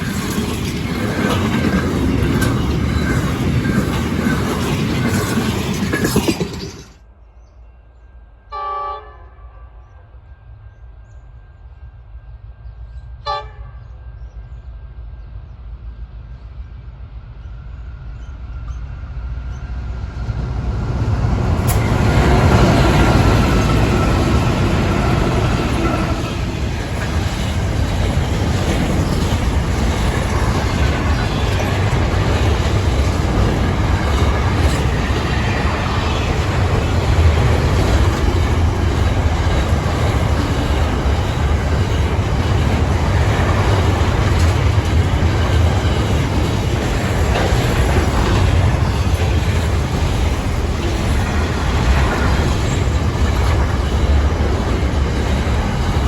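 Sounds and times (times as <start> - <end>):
freight train rumble: 0.0 - 56.0
locomotive horn toots: 8.5 - 9.8, 13.2 - 13.8.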